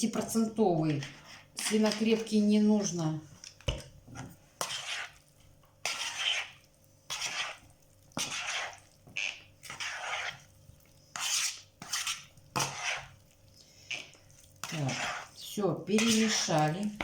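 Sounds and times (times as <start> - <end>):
spoon scraping a bowl: 0.9 - 3.0, 4.2 - 17.0.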